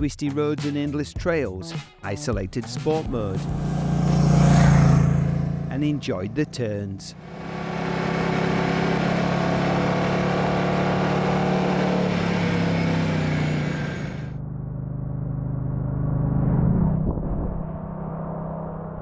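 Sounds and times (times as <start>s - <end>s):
motorcycle engine running: 3.0s - 16.3s.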